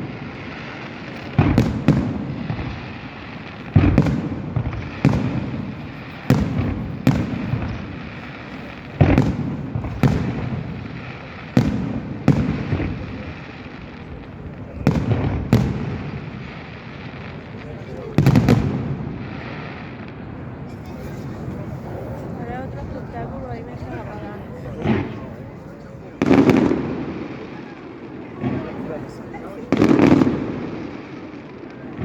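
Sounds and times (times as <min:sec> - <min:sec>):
fireworks bangs: 0:00.0 - 0:32.0.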